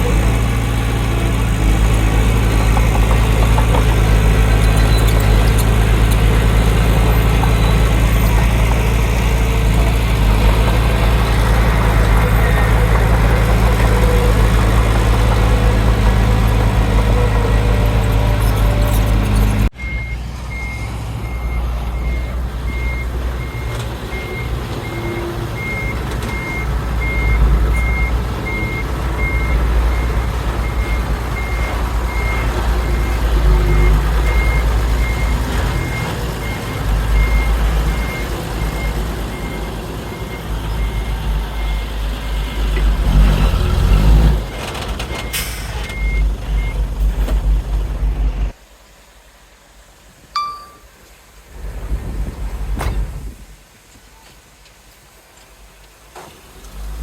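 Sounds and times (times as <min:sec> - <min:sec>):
diesel engine running: 0:00.0 - 0:48.6
reversing alarm beeping: 0:19.8 - 0:42.6, 0:45.2 - 0:46.8.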